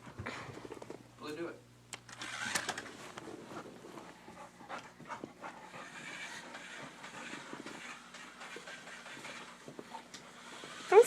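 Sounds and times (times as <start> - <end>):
dog panting hard: 3.5 - 10.1.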